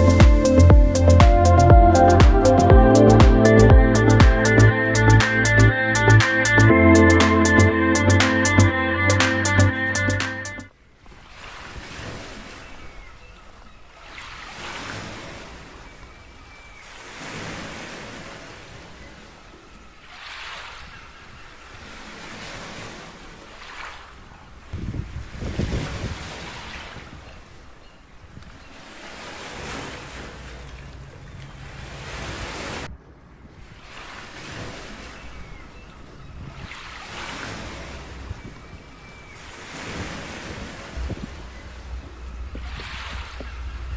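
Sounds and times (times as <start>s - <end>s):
small waves breaking on beach: 11.0s - 43.9s
wind rumbling on microphone: 24.7s - 27.4s, 37.5s - 43.9s.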